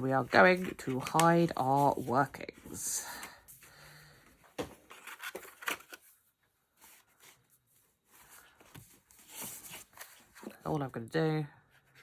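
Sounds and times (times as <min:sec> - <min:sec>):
paper rustling: 0:00.0 - 0:03.8, 0:04.6 - 0:06.1, 0:06.8 - 0:10.6.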